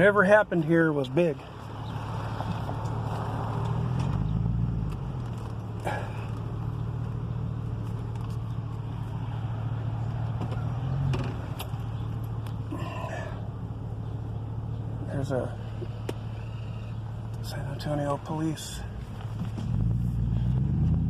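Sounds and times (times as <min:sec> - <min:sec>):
car engine humming: 0:00.0 - 0:21.0.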